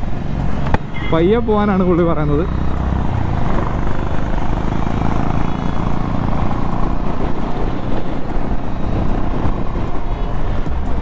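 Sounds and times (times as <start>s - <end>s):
motorcycle engine cruising: 0.0s - 11.0s
wind rush on microphone: 2.9s - 11.0s.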